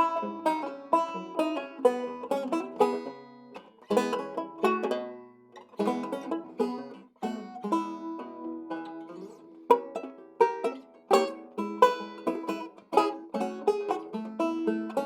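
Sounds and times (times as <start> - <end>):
banjo playing ragtime tune: 0.0 - 15.0.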